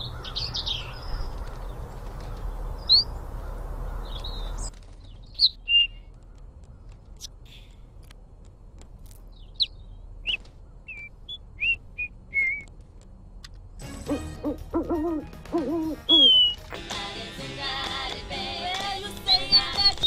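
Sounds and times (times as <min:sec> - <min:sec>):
songbird chirping: 0:00.0 - 0:20.0
music: 0:13.8 - 0:20.0
pigeon cooing: 0:14.1 - 0:16.6.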